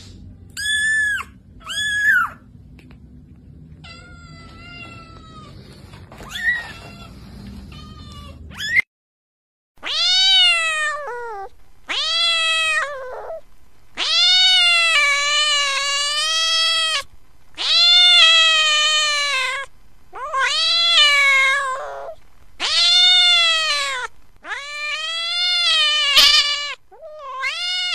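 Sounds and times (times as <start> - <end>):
cat meowing: 6.2 - 8.8, 9.8 - 13.4, 14.0 - 27.9.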